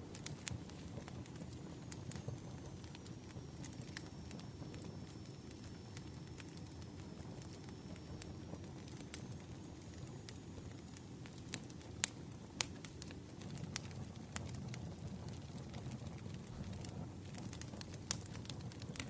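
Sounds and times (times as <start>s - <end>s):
firewood crackling and popping: 0.0s - 19.0s.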